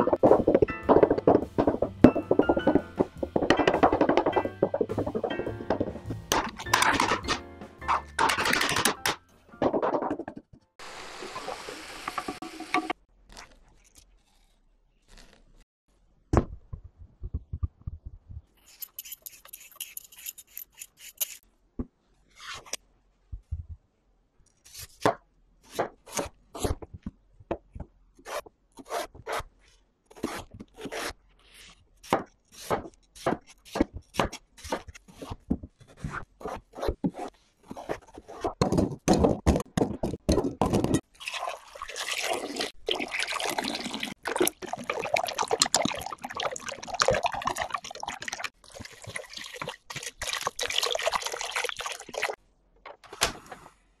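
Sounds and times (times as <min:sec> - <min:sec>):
knife scraping: 0:18.6 - 0:21.4
knife cutting potato on board: 0:32.0 - 0:37.2.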